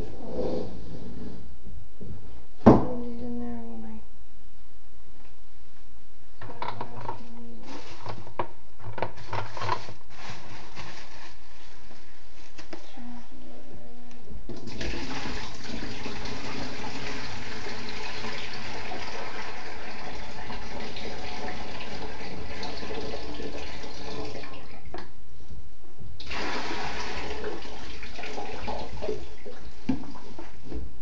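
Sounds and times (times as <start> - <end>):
water pouring into container: 14.5 - 24.8, 26.2 - 30.2.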